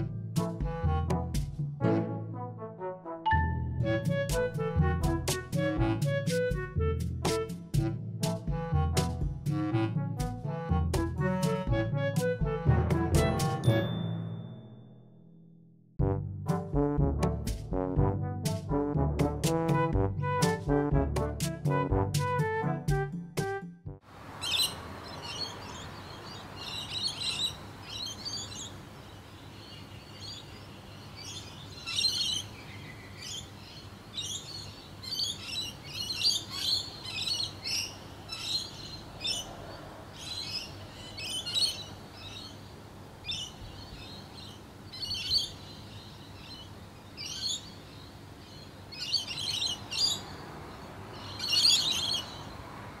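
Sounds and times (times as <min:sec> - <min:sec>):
faint background noise: 0:24.1 - 0:53.0
small birds chirping: 0:24.3 - 0:52.6.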